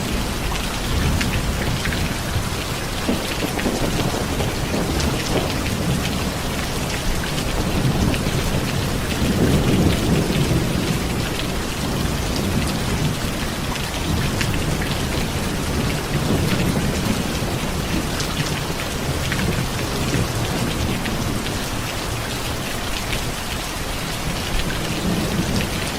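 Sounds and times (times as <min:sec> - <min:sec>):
distant thunder rumbling: 0:00.0 - 0:22.6, 0:24.2 - 0:25.9
heavy rain falling: 0:00.0 - 0:25.9.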